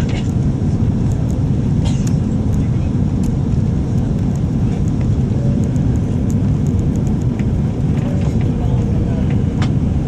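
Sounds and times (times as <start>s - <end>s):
airplane engines rumbling in cabin: 0.0s - 10.0s.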